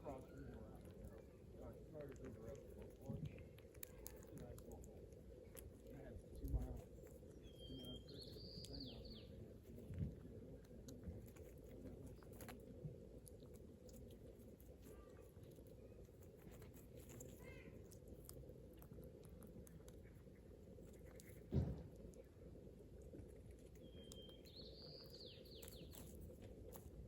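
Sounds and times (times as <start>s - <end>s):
faint low rumble: 0.0s - 27.0s
faint bird chirp: 6.5s - 10.2s, 23.8s - 26.4s
thump: 21.5s - 21.9s.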